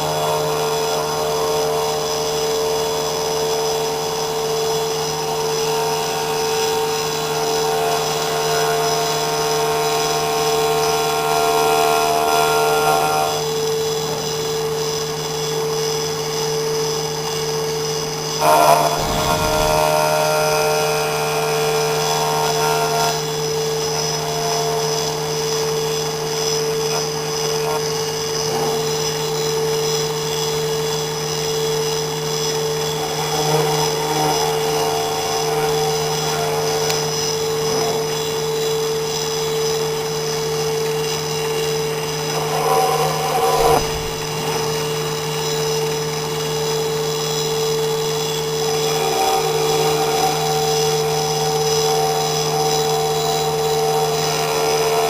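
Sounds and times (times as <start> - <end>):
engraving machine whining: 0.0 - 20.4, 32.4 - 55.0.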